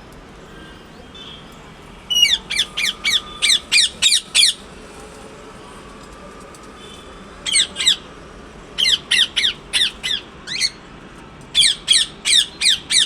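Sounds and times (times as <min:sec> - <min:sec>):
parrot squawking: 0:02.1 - 0:04.6, 0:07.4 - 0:08.1, 0:08.8 - 0:10.8, 0:11.6 - 0:13.0.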